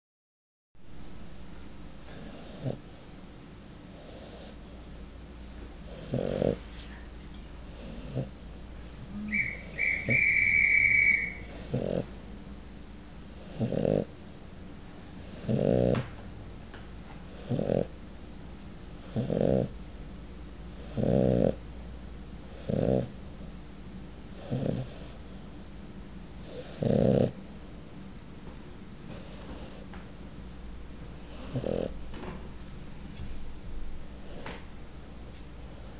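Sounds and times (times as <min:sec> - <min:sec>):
dog snoring: 0:02.0 - 0:02.8, 0:03.9 - 0:04.6, 0:05.8 - 0:06.7, 0:07.6 - 0:08.4, 0:09.1 - 0:12.2, 0:13.3 - 0:14.1, 0:15.2 - 0:16.1, 0:17.2 - 0:17.9, 0:19.0 - 0:19.8, 0:20.7 - 0:21.6, 0:22.4 - 0:23.2, 0:24.3 - 0:25.2, 0:26.4 - 0:27.4, 0:29.1 - 0:29.9, 0:31.1 - 0:32.0, 0:34.1 - 0:34.6
high whistling tone: 0:09.1 - 0:11.6.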